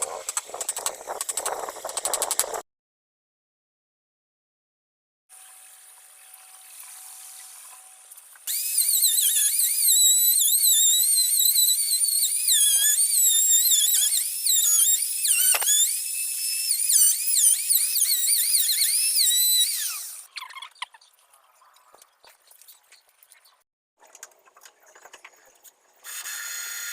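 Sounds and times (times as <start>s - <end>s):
power tool motor whining: 8.5s - 20.3s, 26.0s - 26.9s.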